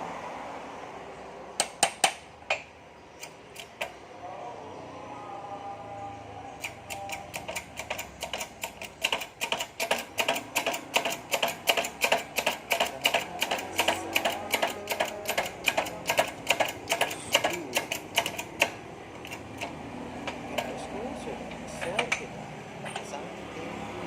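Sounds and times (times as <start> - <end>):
rapid metallic clicks: 6.6 - 20.8.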